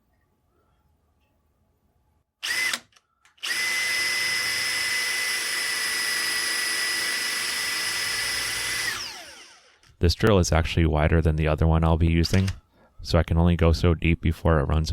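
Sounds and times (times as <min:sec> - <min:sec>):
electric drill whining: 0:02.4 - 0:09.8.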